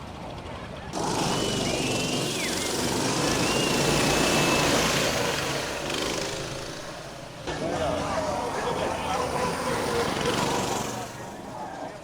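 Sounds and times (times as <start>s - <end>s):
minibike engines racing: 0.0s - 12.0s
thin whistling tone: 1.2s - 5.2s.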